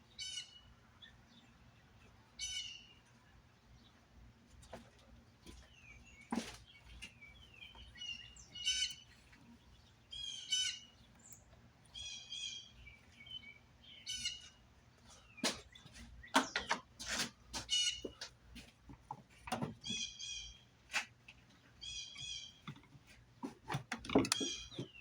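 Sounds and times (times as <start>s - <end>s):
bird chirping: 0.0s - 4.0s, 5.4s - 16.9s, 17.6s - 18.3s, 19.6s - 20.8s, 21.7s - 23.0s, 24.1s - 25.0s
sharp clicks and knocks: 22.6s - 25.0s.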